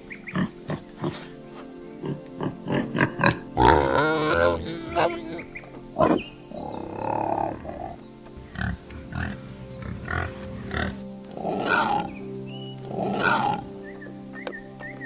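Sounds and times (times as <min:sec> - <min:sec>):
background music: 0:00.0 - 0:15.0
pig grunting and squealing: 0:02.0 - 0:05.4, 0:06.0 - 0:12.2, 0:12.9 - 0:13.7.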